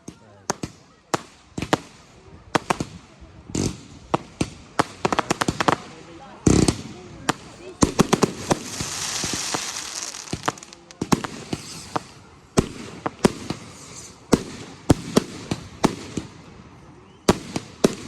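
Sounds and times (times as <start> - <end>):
fireworks bangs: 3.6 - 16.3
hissing crackle: 7.8 - 12.2.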